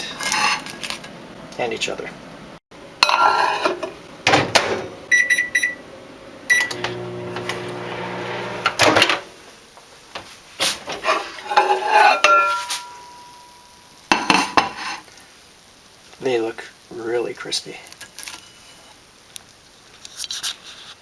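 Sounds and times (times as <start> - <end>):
microwave humming: 3.9 - 9.5
microwave stopping clunk: 4.2 - 5.6, 6.5 - 9.3
microwave keypad beep: 5.1 - 5.8, 6.5 - 6.8
plate clattering: 11.5 - 13.4.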